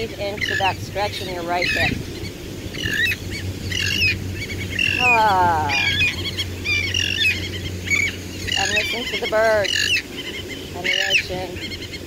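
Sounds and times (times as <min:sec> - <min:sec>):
birds chirping: 0:00.0 - 0:12.0
long falling bird call: 0:00.3 - 0:12.0.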